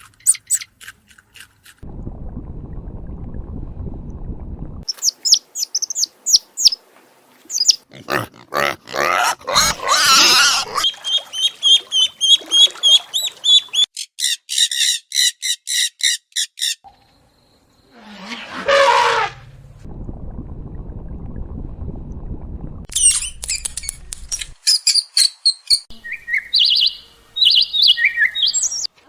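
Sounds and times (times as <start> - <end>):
high chirps: 4.9 - 6.8
harsh squealing squawk: 9.0 - 16.8.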